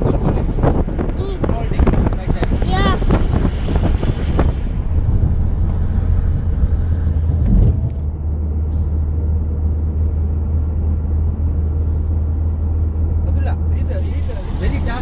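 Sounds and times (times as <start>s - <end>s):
wind rushing over microphone: 0.0s - 8.4s
steady low rumble: 0.0s - 15.0s.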